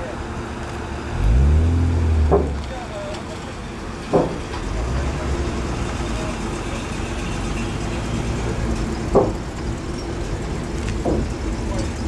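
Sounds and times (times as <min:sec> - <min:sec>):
car engines rumbling: 0:00.0 - 0:12.0
short sharp thump: 0:02.2 - 0:02.7.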